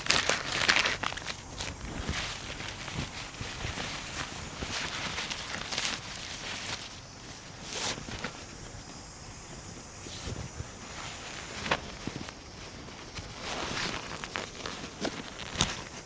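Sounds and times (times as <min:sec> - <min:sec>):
crunching footsteps on ground: 0:00.0 - 0:16.0.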